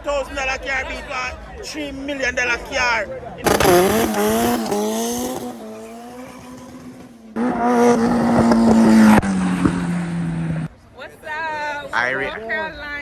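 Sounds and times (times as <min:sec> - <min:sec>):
race car engines at high revs: 0:03.4 - 0:10.8.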